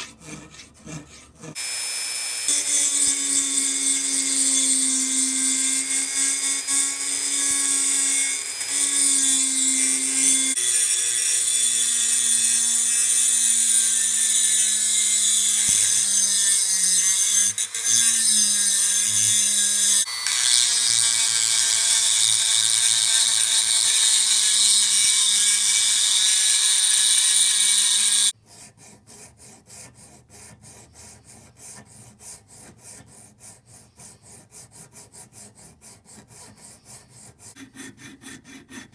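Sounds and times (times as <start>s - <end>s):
power tool grinding metal: 0.0s - 28.4s
hand-filing strokes: 0.0s - 38.9s.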